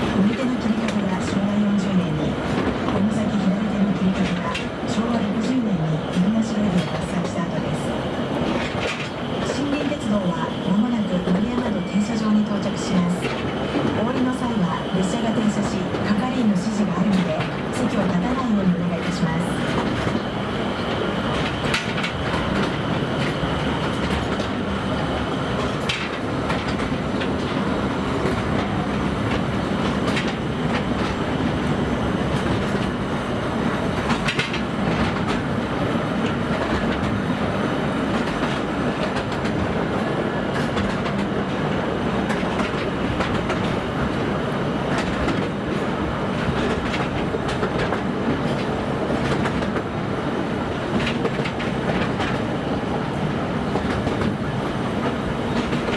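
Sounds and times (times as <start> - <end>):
train wheels rumbling on track: 0.0 - 55.9
wheels clicking over rail joints: 8.4 - 10.1, 19.0 - 37.3, 38.0 - 55.9.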